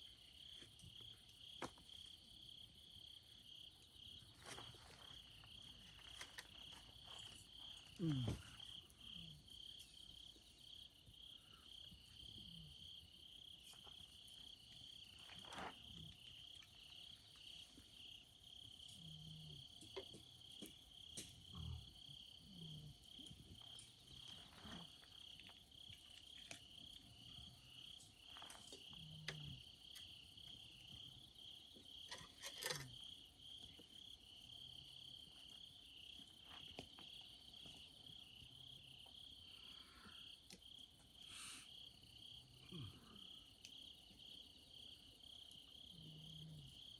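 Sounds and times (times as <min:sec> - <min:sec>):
crickets chirping: 0:00.0 - 0:46.9.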